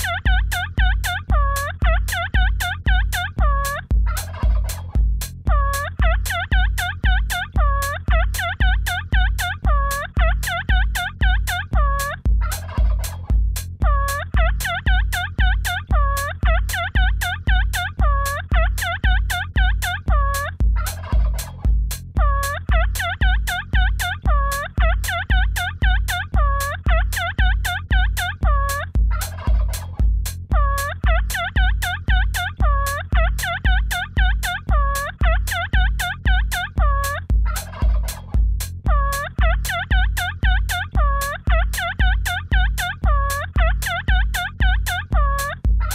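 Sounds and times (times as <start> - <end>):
chopped turkey gobbling: 0.0 - 45.9
kick drum beat: 0.0 - 45.9.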